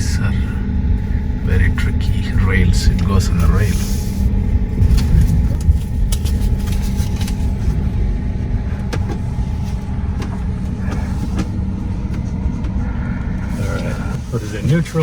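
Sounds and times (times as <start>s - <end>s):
low rumble inside car: 0.0s - 15.0s.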